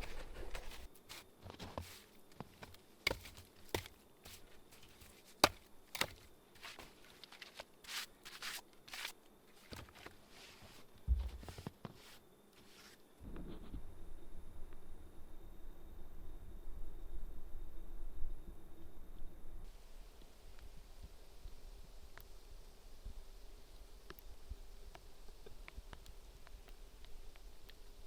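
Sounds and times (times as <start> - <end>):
soft scuffs: 0.0 - 13.0
faint high whine: 0.0 - 28.0.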